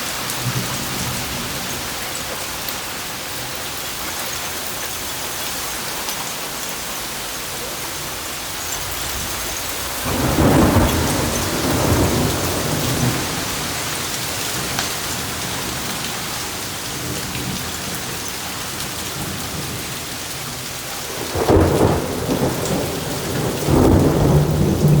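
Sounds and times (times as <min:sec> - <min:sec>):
heavy rain hissing: 0:00.0 - 0:25.0
thunder rolling: 0:09.0 - 0:15.5, 0:21.1 - 0:25.0.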